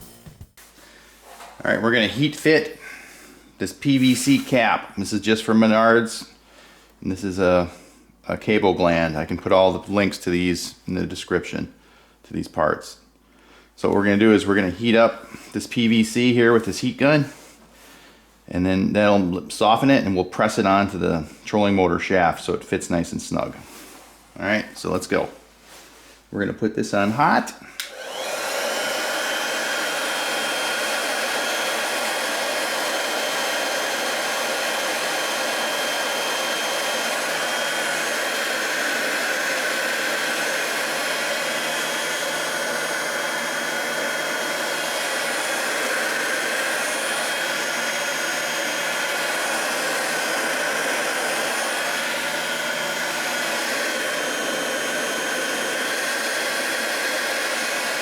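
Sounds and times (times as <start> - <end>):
heat gun blowing air: 3.8 - 4.8, 27.2 - 58.0.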